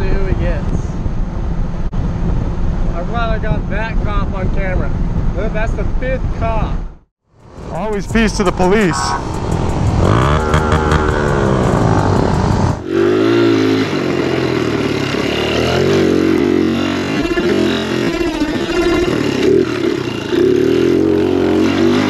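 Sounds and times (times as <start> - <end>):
dirt bike revving: 7.4 - 22.0
motorcycle engine revving: 7.4 - 22.0.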